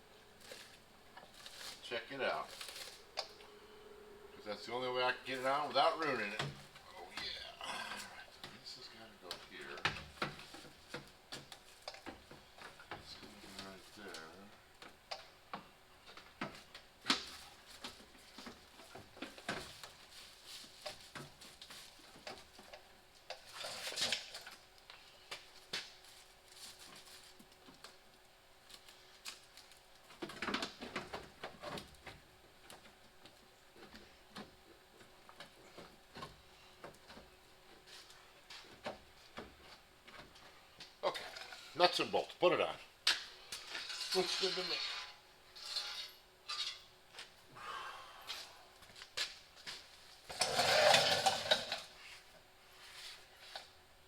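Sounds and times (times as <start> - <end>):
rustling scrapes: 0.4 - 3.2, 43.5 - 46.9.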